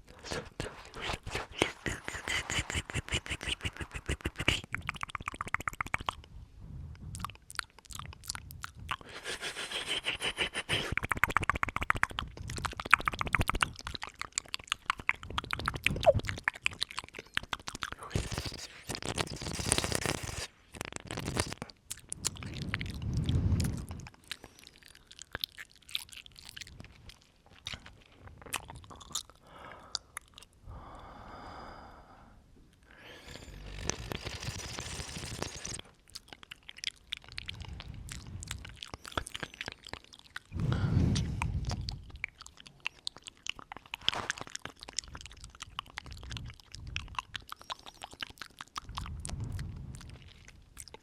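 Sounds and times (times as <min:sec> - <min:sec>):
breaths on microphone: 0:00.0 - 0:04.8, 0:22.1 - 0:24.8, 0:29.0 - 0:35.9, 0:37.4 - 0:39.5, 0:40.5 - 0:42.0
wet mouth clicks and smacks: 0:00.0 - 0:06.4, 0:07.0 - 0:30.6, 0:32.7 - 0:51.0.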